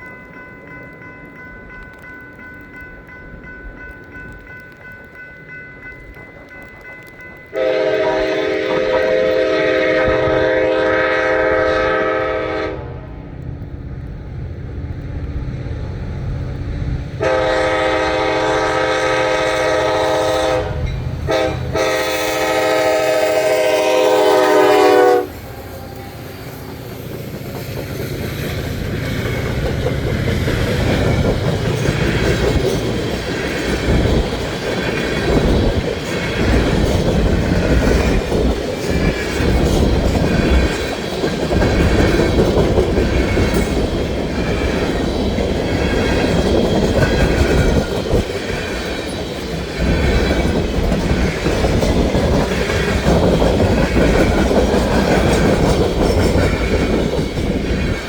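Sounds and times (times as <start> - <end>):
diesel locomotives rumbling: 0.0 - 58.0
train wheels clacking over rail joints: 17.2 - 58.0.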